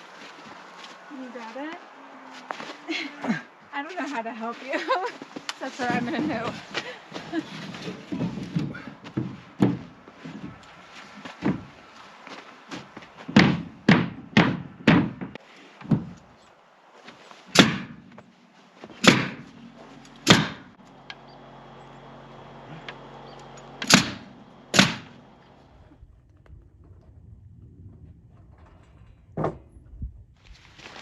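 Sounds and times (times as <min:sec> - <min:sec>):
knocks and bangs on plywood: 0:07.8 - 0:10.6, 0:11.3 - 0:11.8, 0:13.3 - 0:16.2, 0:17.6 - 0:18.0, 0:19.0 - 0:19.5, 0:20.2 - 0:20.7.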